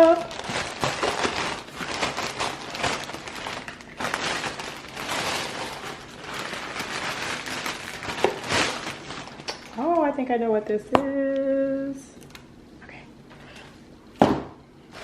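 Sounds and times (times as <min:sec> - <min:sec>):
packaging crinkling and tearing: 0:00.0 - 0:10.0.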